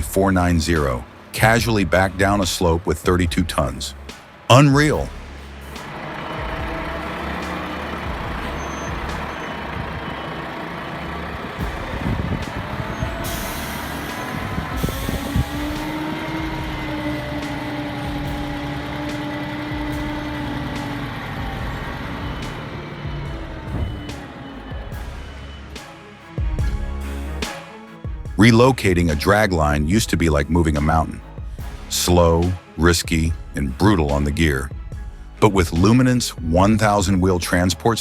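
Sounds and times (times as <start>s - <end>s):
truck engine running under load: 0.0s - 27.6s
air brake hiss: 12.0s - 17.6s.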